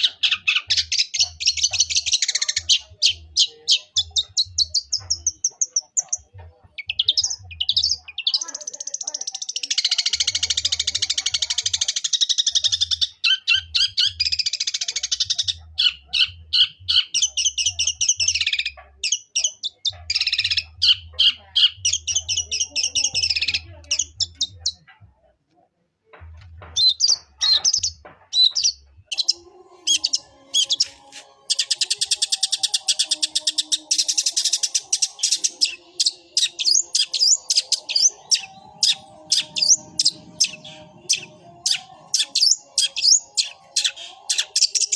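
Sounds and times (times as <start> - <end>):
shrike singing high chirps: 27.7 - 44.9.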